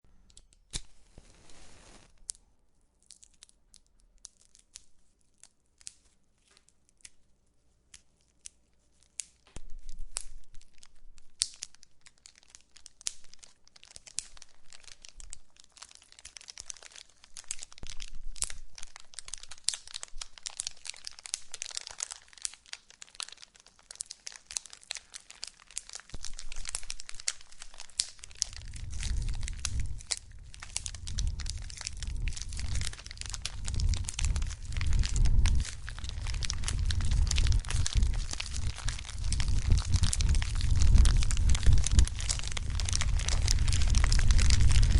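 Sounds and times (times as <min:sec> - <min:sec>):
wood fire crackling and popping: 0:00.7 - 0:02.2, 0:09.5 - 0:44.9
hiss of flames: 0:00.9 - 0:02.1
low rumble: 0:28.3 - 0:44.9.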